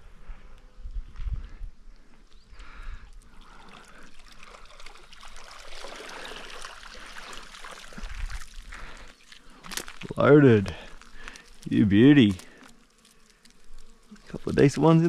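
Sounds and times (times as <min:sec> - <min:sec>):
water trickling and splashing: 0:03.3 - 0:10.3
small clicks and rustling: 0:09.3 - 0:10.1, 0:10.9 - 0:14.4.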